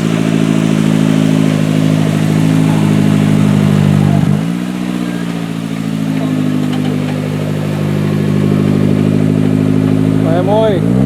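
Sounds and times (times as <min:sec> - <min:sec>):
off-road vehicle engine under throttle: 0:00.0 - 0:11.0.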